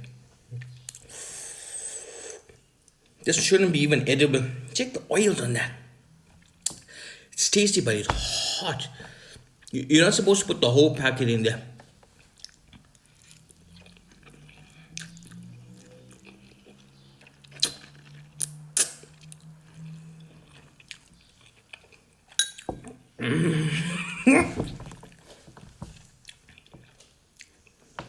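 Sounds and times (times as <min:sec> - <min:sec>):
loud breathy vocal sound: 0:08.1 - 0:09.4
man chewing noodles: 0:12.1 - 0:22.4.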